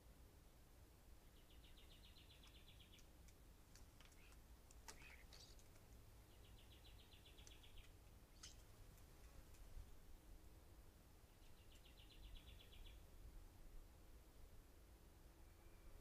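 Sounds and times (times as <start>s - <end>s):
bird chirps and clicks: 1.5s - 10.0s, 11.4s - 12.9s
bird trills: 4.1s - 5.6s.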